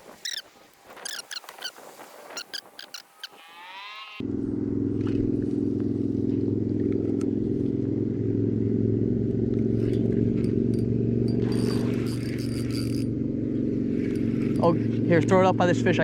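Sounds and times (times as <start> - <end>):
engine running steadily: 4.2 - 16.0.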